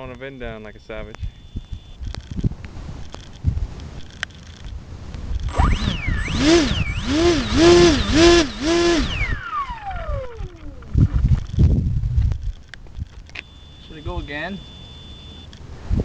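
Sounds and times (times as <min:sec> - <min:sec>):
electric motor and propeller whine: 0:05.2 - 0:15.5.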